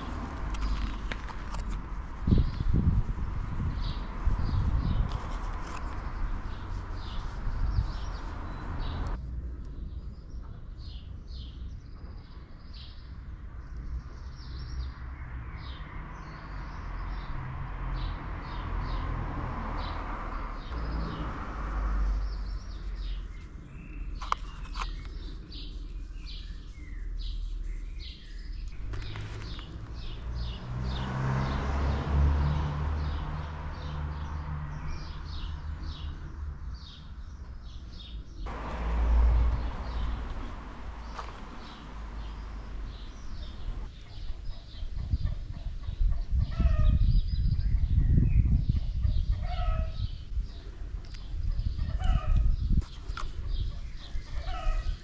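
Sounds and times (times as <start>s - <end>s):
birds chirping: 0.0s - 9.2s, 19.8s - 48.3s.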